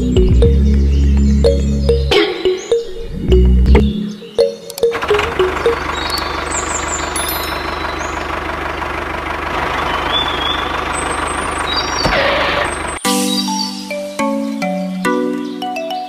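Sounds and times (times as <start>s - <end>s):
small engine chugging: 4.9s - 13.0s.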